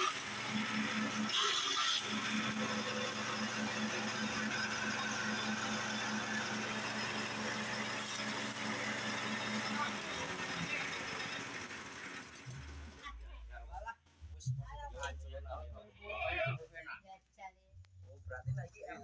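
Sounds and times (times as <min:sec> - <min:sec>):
grass chopper machine humming: 0:00.0 - 0:13.0.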